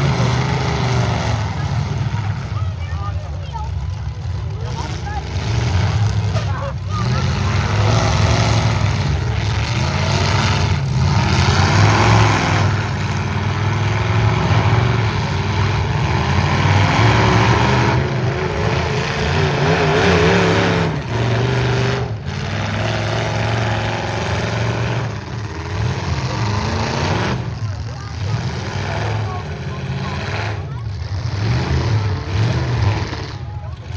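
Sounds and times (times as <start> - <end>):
truck engines revving: 0.0 - 33.9.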